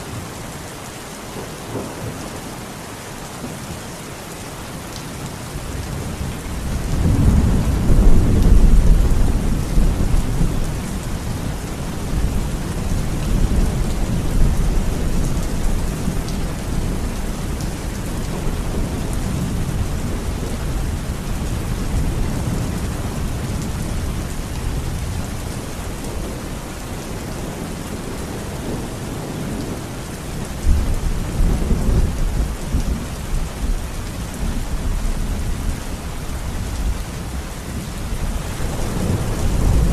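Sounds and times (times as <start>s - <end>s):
heavy rain: 0.0s - 39.9s
rolling thunder: 5.9s - 26.5s, 36.6s - 39.9s.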